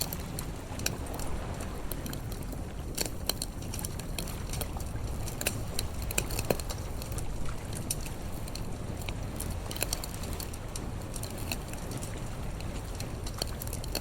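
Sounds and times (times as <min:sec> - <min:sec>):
campfire crackling and popping: 0:00.0 - 0:14.0
low rumble: 0:00.4 - 0:13.6.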